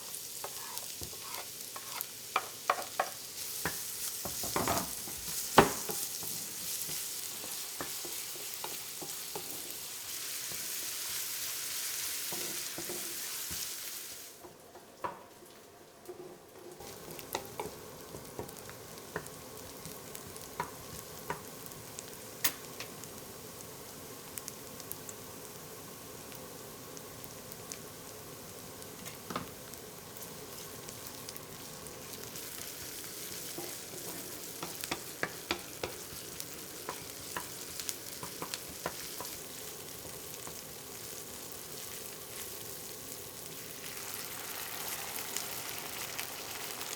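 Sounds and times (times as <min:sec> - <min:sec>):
food sizzling in a frying pan: 0:00.0 - 0:46.9
utensil scraping a pan: 0:00.4 - 0:02.1.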